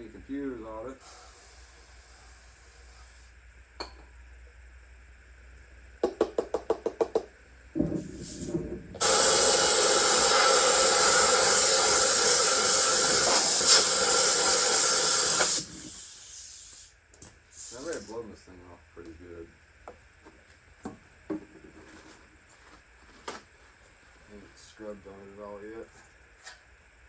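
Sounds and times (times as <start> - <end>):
spray nozzle hissing: 9.0 - 16.9.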